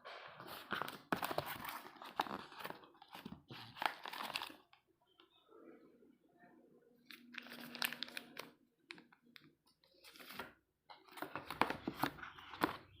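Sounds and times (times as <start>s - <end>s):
packaging crinkling and rustling: 0.4s - 4.8s, 7.1s - 13.0s.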